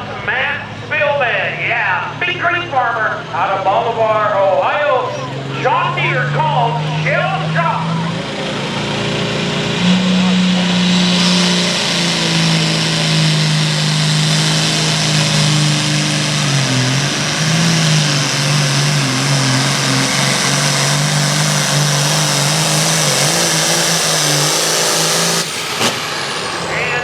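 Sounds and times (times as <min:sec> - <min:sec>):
tractor diesel engine under load: 0:00.0 - 0:27.0.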